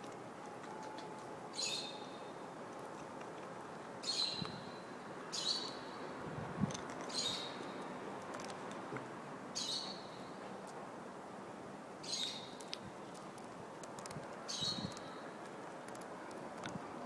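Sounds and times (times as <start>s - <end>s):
background hiss: 0.0s - 17.0s
bird chirping: 1.5s - 2.4s, 4.0s - 6.1s, 7.1s - 7.9s, 9.6s - 10.4s, 12.0s - 12.8s, 14.5s - 15.2s.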